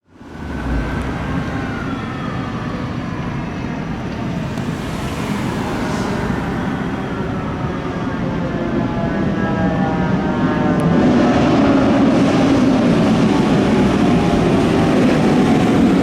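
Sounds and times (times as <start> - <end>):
heavy engine rumble: 0.1 - 10.8
siren falling in pitch: 0.3 - 16.0.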